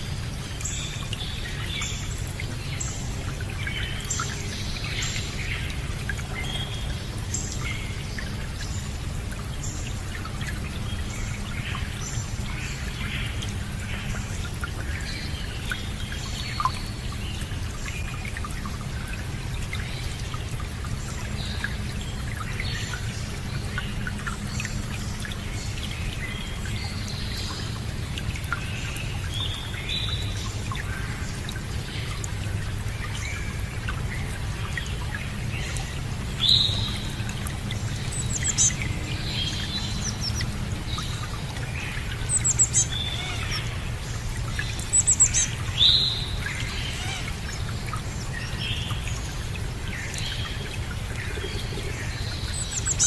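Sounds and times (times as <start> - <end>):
small birds chirping: 21.2 - 53.0.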